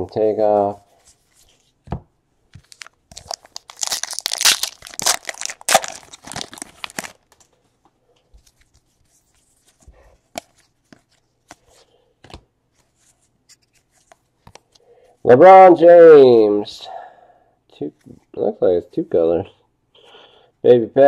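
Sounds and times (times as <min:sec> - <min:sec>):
wrapper tearing and crinkling: 0:02.6 - 0:07.3.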